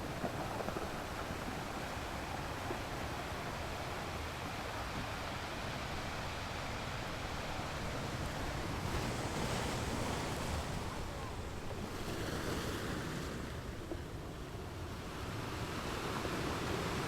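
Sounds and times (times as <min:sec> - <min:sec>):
ocean surf washing on beach: 0:00.0 - 0:17.0.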